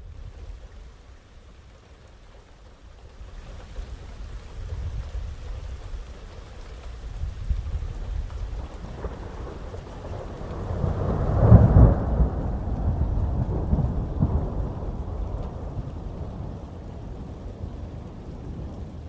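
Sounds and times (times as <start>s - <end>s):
heavy rain: 0.0s - 19.0s
thunder rumbling: 7.0s - 19.0s.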